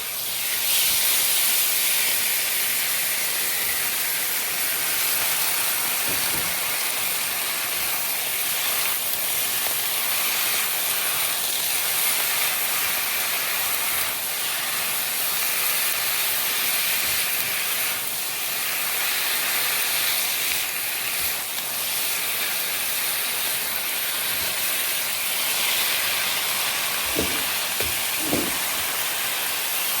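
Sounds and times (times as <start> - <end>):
food sizzling in hot oil: 0.0 - 30.0
light knocks: 27.1 - 28.8.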